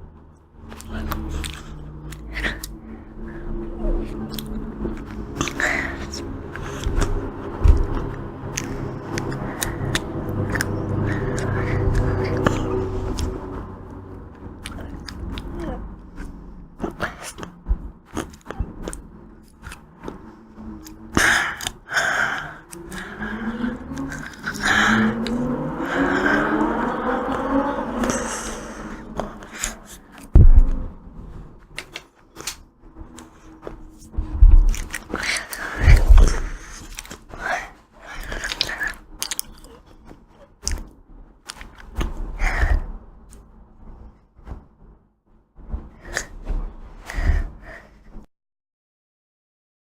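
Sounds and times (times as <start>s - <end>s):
ice cream chewing and crunching: 0.7s - 2.8s, 4.2s - 25.5s, 31.6s - 42.2s.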